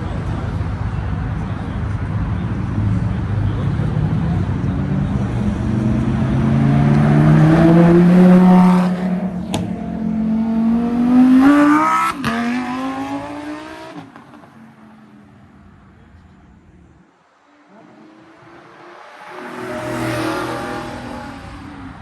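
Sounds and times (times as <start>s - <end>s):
car engine accelerating through gears: 4.0s - 14.4s, 17.8s - 22.0s.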